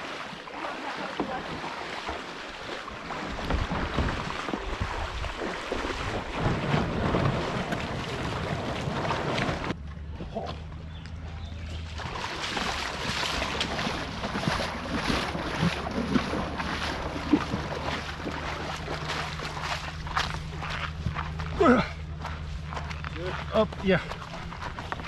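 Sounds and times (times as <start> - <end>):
river water flowing: 0.0 - 9.8, 11.6 - 25.0
wind buffeting microphone: 3.3 - 9.8
low steady hum: 4.8 - 25.0.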